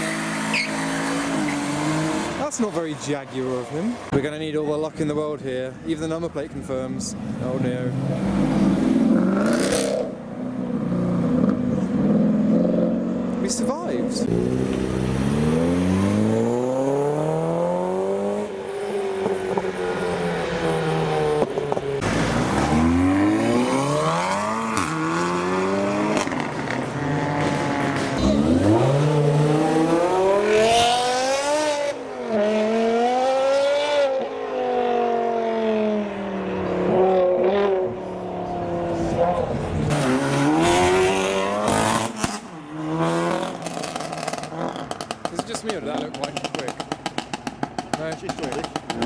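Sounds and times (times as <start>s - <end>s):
car engines revving: 0.0s - 49.0s.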